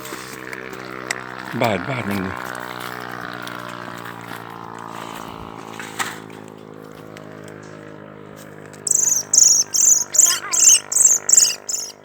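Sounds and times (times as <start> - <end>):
shrill chirps: 8.9 - 12.0.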